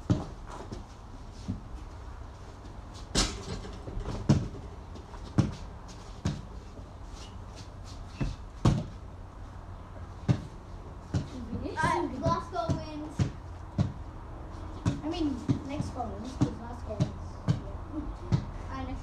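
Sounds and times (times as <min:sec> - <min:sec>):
basketball bouncing on hard floor: 0:03.1 - 0:04.6, 0:05.4 - 0:05.6, 0:08.6 - 0:08.9, 0:10.3 - 0:10.5, 0:12.6 - 0:14.0.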